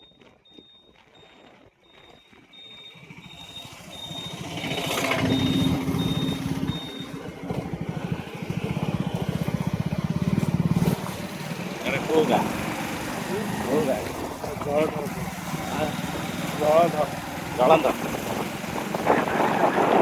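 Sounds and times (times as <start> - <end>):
high electronic beeping: 0.0 - 7.3
vehicle engine approaching: 2.4 - 20.0.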